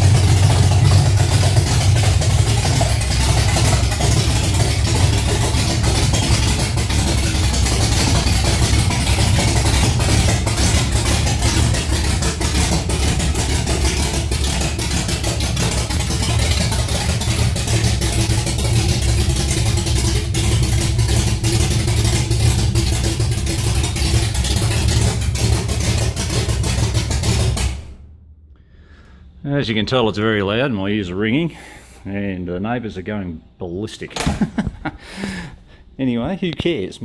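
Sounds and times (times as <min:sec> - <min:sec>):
loud engine running: 0:00.0 - 0:28.0.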